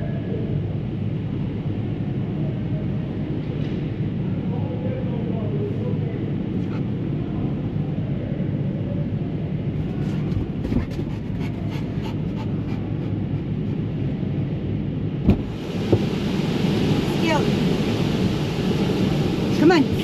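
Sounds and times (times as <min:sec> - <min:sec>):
truck engine rumble: 0:06.1 - 0:20.0.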